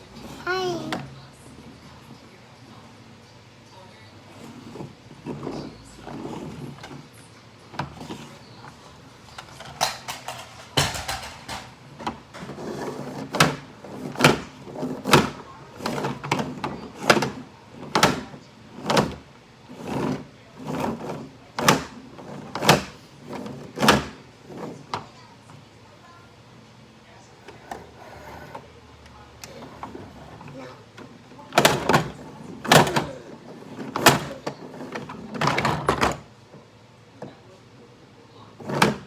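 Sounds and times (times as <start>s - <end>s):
toy trucks knocking: 9.4s - 19.2s.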